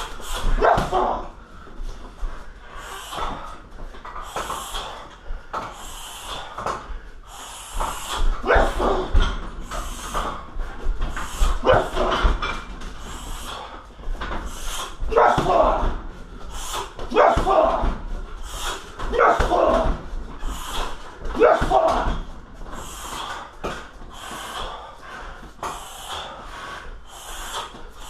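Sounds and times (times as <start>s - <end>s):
fighter exhaling and grunting: 0.0s - 1.4s, 5.7s - 13.8s, 14.5s - 25.0s
blows thudding on heavy bag: 14.5s - 24.8s.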